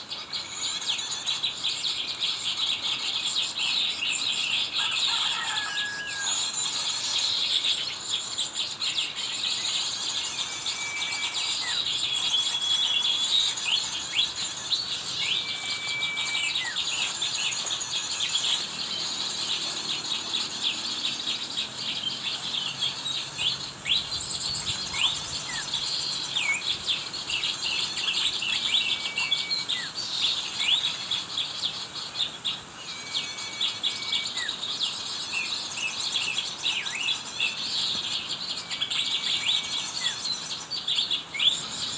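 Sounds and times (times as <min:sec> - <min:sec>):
small birds chirping: 0:00.0 - 0:41.9
whistled bird note: 0:09.6 - 0:18.5, 0:32.8 - 0:34.5.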